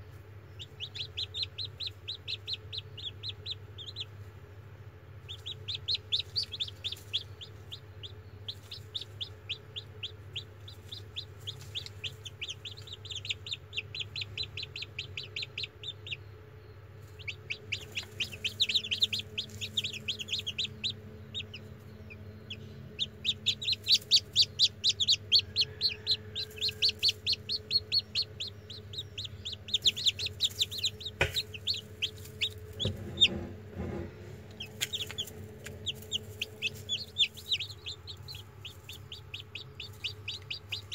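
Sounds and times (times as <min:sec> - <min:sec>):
chicks peeping: 0:00.0 - 0:40.9
low steady hum: 0:00.0 - 0:40.9
soft knocks: 0:32.7 - 0:34.3.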